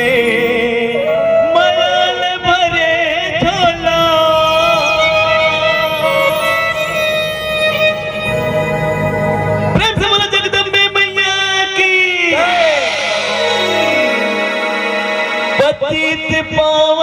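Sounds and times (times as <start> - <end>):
wavering held melodic notes: 0.0 - 16.2
devotional song: 0.0 - 17.0.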